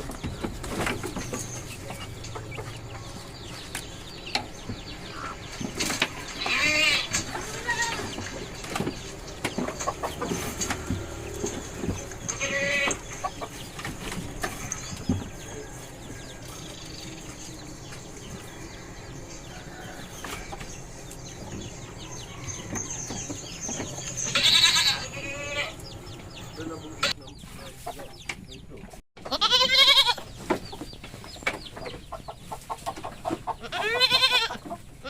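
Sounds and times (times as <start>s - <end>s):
knocks and shuffling: 0.0s - 33.6s
goats bleating: 6.3s - 8.2s, 12.2s - 13.0s, 24.3s - 25.8s, 29.2s - 30.2s, 33.6s - 34.6s.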